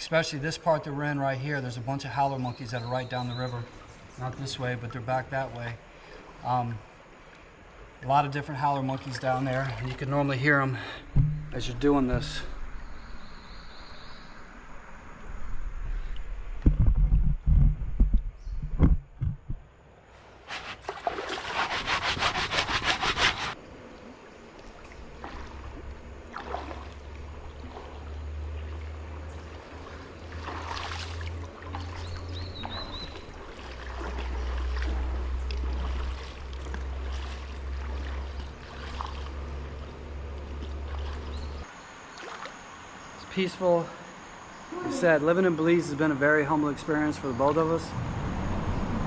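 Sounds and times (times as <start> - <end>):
water sounds: 0.0 - 13.2, 20.2 - 47.8
clothes scrubbed against rock: 20.4 - 23.6.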